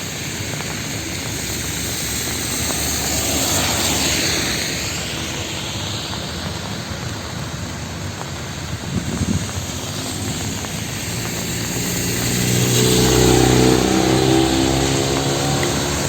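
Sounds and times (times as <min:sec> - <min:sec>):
rain and traffic hiss: 0:00.0 - 0:16.0
vehicle engine passing by: 0:09.7 - 0:16.0.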